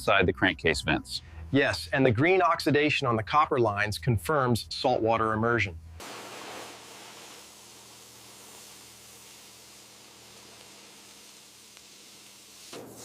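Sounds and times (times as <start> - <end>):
steady hiss: 6.0 - 13.0.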